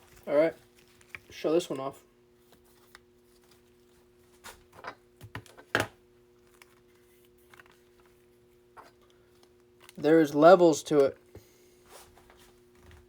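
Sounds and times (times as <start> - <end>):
card and plastic sleeve rustling: 0.0 - 5.7, 6.4 - 10.0.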